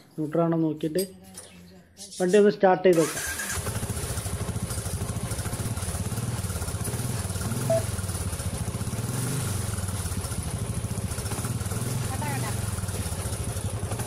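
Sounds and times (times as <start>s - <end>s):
motorcycle engine idling: 3.2s - 14.0s.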